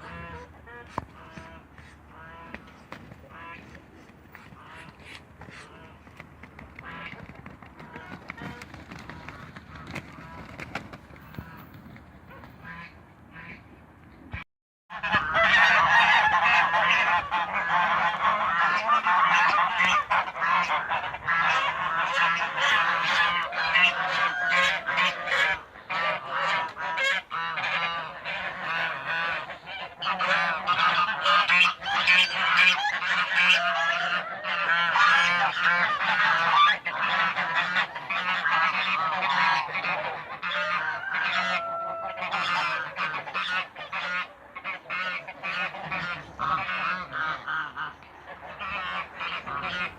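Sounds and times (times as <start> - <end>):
flock of birds calling: 15.0 - 49.9.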